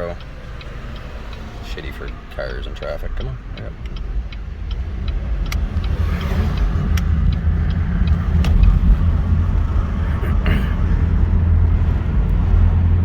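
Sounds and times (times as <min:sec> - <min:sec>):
faint clicks: 0:00.0 - 0:09.7
vehicle engine and road rumble: 0:00.0 - 0:13.0.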